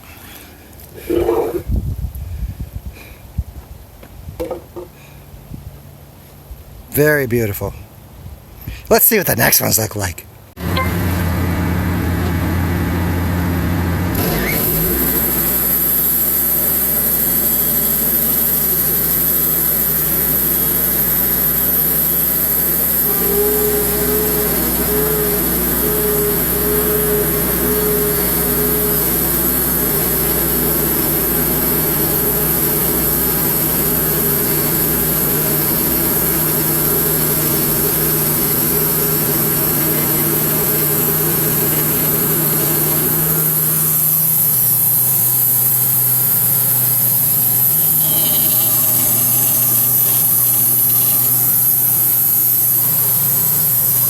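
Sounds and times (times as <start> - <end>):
bandsaw mill sawing log: 10.6 - 54.0.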